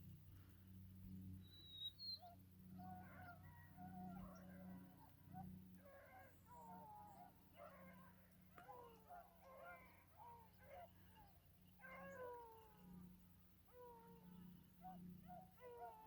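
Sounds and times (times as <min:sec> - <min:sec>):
hounds baying: 0:02.8 - 0:12.5, 0:13.7 - 0:16.0.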